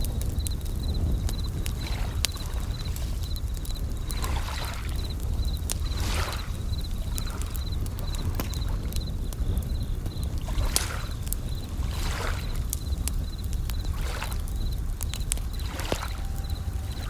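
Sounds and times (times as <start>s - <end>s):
campfire crackling: 0.0s - 17.0s
crickets chirping: 0.0s - 17.0s
waves washing in: 0.1s - 17.0s.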